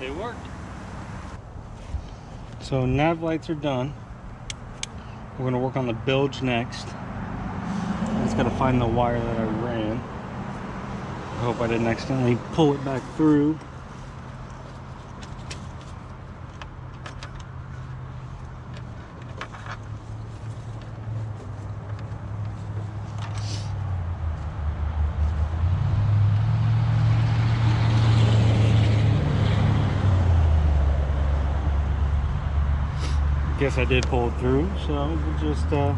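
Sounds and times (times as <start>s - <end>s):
handling clicks and rustles: 12.2s - 23.5s.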